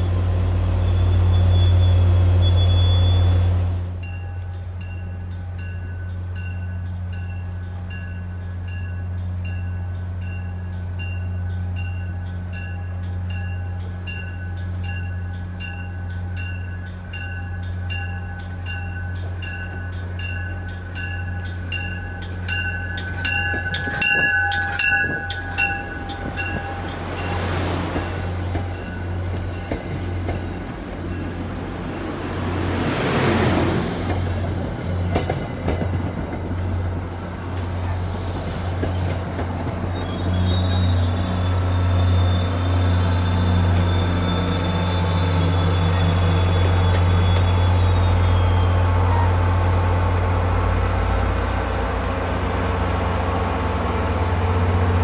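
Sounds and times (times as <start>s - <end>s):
warning bell ringing: 4.0s - 27.5s.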